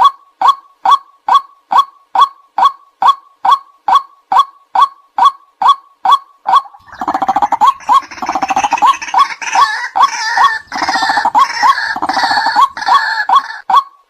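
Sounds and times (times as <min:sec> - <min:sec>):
waterhen kwak calls: 0:00.4 - 0:14.0
bird harsh croaking chatter: 0:06.1 - 0:13.8.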